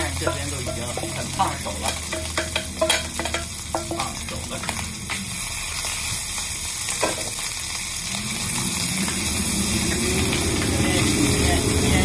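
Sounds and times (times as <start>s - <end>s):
fried rice sizzling in pan: 0.0s - 12.0s
low rumble rising in pitch: 7.9s - 12.0s.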